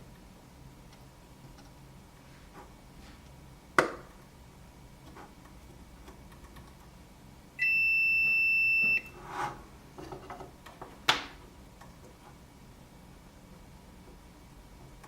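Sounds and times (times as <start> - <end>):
multimeter beeping: 7.6 - 9.2.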